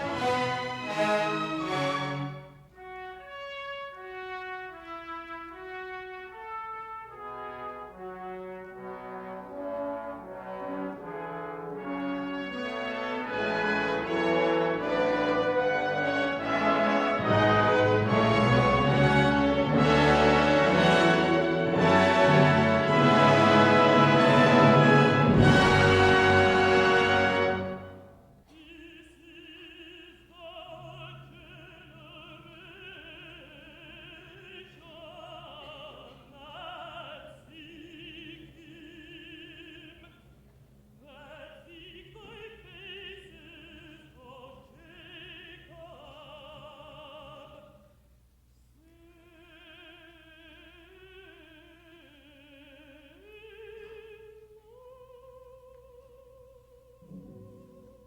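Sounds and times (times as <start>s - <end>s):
soft orchestral accompaniment: 0.0s - 28.4s, 56.9s - 58.0s.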